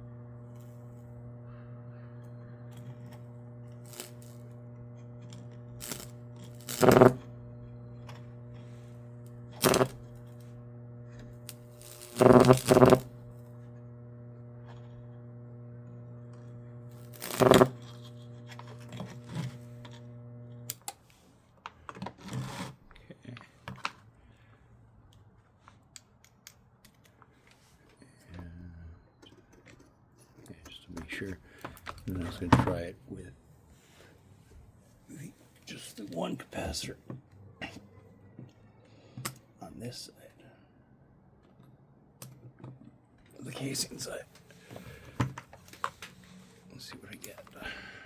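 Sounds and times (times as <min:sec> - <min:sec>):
transformer humming: 0:00.0 - 0:20.9
small clicks: 0:00.0 - 0:21.0
high-voltage discharge crackling: 0:02.6 - 0:15.3, 0:16.0 - 0:18.0.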